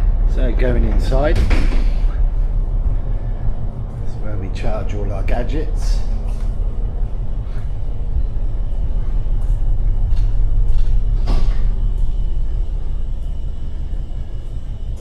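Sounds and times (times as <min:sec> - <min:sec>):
boat engine rumble: 0:00.0 - 0:15.0.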